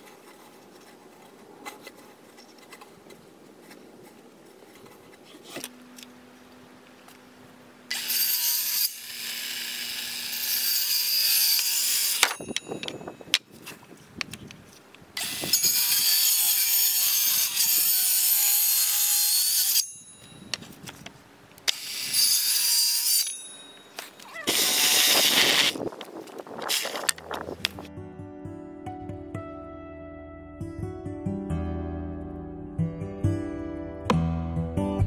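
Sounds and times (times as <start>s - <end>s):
circular saw cutting wood: 7.9s - 12.4s, 15.2s - 20.0s, 21.7s - 23.5s, 24.5s - 25.8s
cordless drill into wood: 24.5s - 25.8s.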